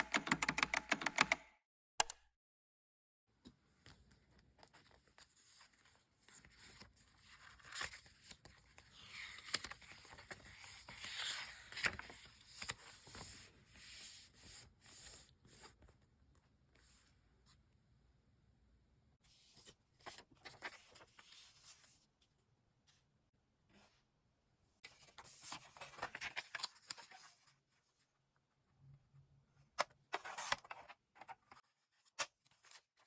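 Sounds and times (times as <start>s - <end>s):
paper rustling: 3.8s - 15.7s, 24.9s - 27.6s.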